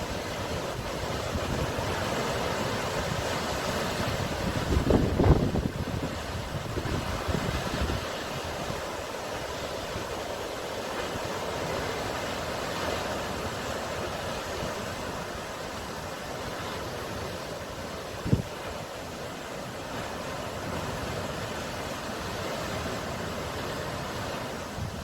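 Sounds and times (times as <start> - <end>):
sea waves and surf: 0.0 - 25.0
wind gusts on microphone: 0.0 - 25.0.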